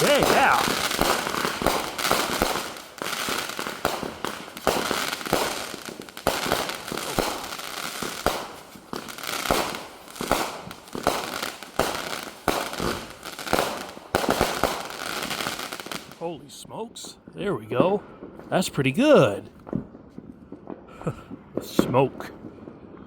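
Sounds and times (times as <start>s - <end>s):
fireworks bangs and crackling pops: 0.0s - 23.0s.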